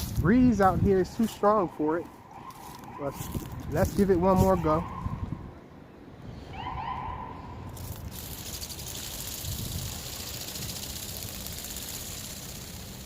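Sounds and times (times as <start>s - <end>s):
wind rumble on microphone: 0.0s - 1.5s, 2.6s - 12.2s
toy motor and flapping wings buzzing: 7.7s - 13.0s.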